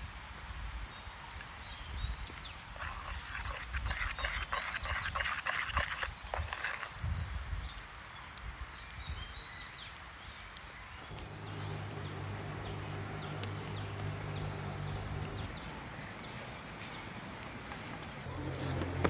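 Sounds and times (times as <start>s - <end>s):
steady low hum: 11.0s - 19.0s.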